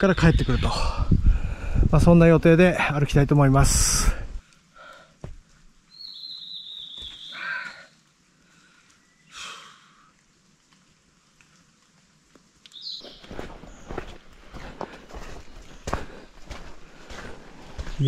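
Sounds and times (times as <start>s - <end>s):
forest bird whistling: 5.9s - 7.8s, 12.8s - 13.9s.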